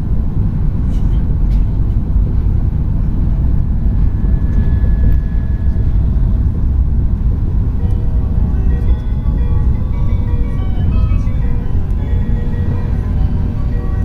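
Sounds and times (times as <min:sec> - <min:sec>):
train cabin rumble: 0:00.0 - 0:14.0
melodic chime: 0:07.7 - 0:14.0.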